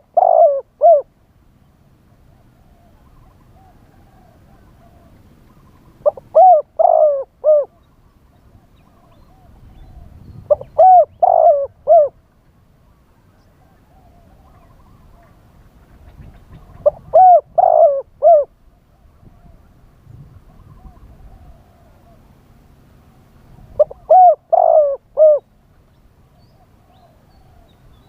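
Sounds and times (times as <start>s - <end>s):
fainter dove cooing: 0.0s - 1.1s, 2.6s - 7.9s, 10.5s - 12.2s, 13.6s - 19.6s, 23.8s - 25.5s
dove cooing: 0.0s - 1.2s, 2.4s - 7.9s, 8.5s - 12.2s, 13.5s - 19.7s, 20.4s - 22.3s, 23.7s - 25.6s.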